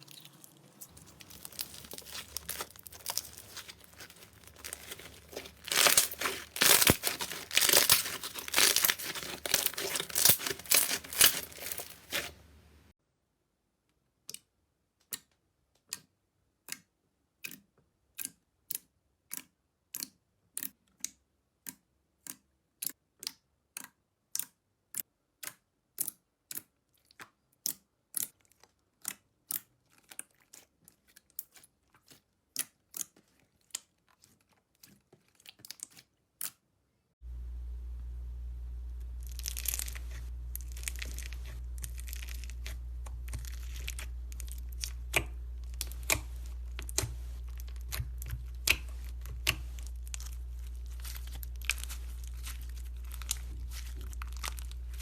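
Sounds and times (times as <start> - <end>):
slime popping: 0.0 - 12.3, 39.2 - 55.0
slime crackling and squelching: 0.0 - 12.5, 27.0 - 36.6, 39.0 - 55.0.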